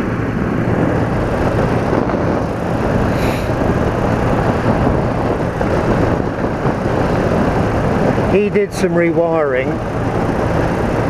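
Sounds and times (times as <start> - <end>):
motorcycle engine cruising: 0.0 - 11.0
wind rush on microphone: 0.0 - 11.0.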